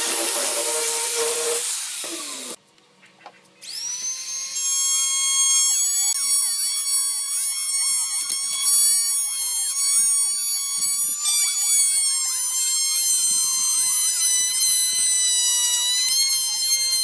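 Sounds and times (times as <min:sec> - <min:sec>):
power tool hissing cut: 0:00.0 - 0:02.6.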